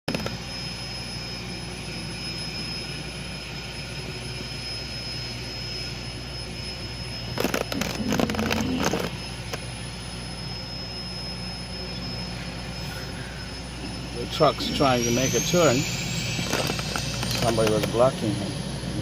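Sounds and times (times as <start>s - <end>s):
faint high whine: 0.1s - 19.0s
wavering low hum: 0.1s - 19.0s.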